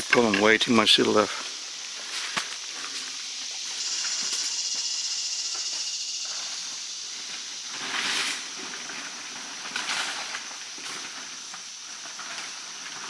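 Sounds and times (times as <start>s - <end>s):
high steady insect buzz: 0.0s - 13.0s
footsteps through wet brush: 1.1s - 4.0s.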